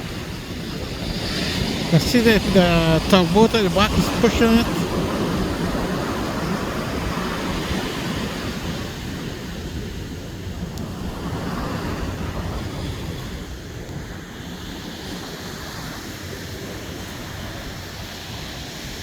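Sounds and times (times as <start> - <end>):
ocean surf washing in: 1.8 - 8.8.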